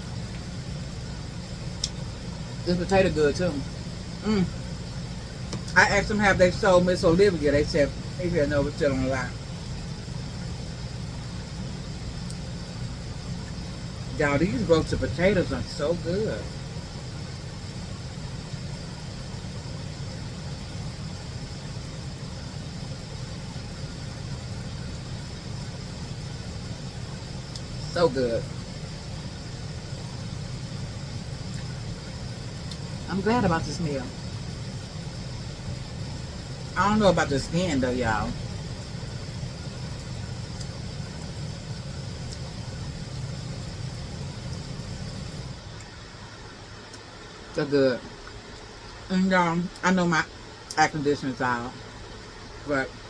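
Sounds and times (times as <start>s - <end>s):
low mechanical rumble: 0.0s - 53.0s
faint ticks: 1.8s - 2.0s.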